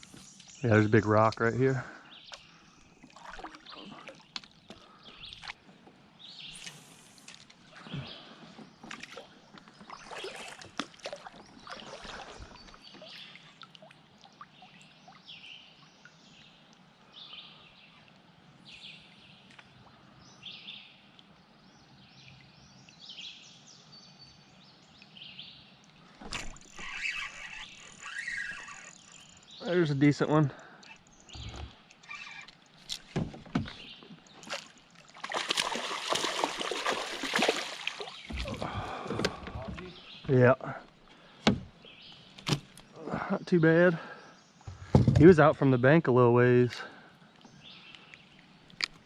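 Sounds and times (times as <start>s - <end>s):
songbirds chirping: 0.0s - 49.0s
water lapping against kayak: 2.0s - 16.4s, 25.9s - 43.3s.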